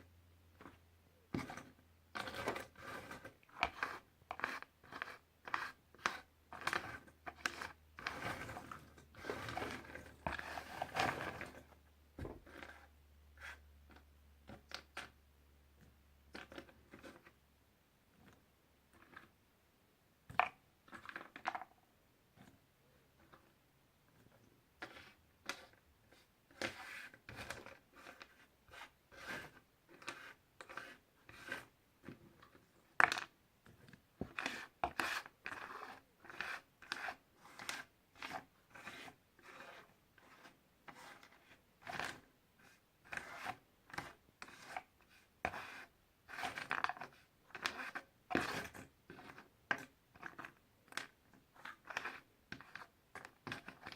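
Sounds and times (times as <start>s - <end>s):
scratchy rustling: 1.3s - 11.7s.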